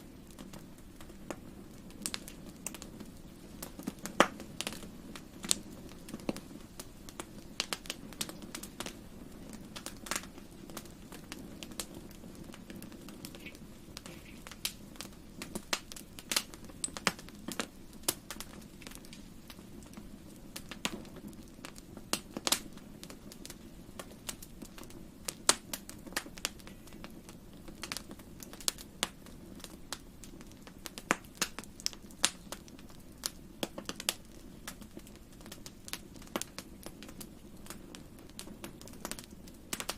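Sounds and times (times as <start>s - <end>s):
fireplace fire crackling: 0.0s - 39.9s
sharp pops and snaps: 9.8s - 20.0s, 39.0s - 39.9s.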